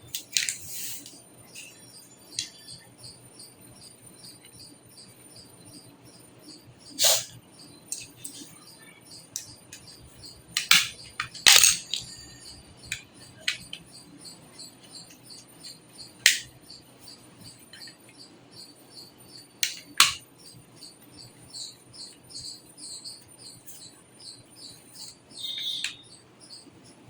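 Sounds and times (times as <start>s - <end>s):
sharp clicks: 16.2s - 16.5s
small animal chirping: 20.4s - 27.0s.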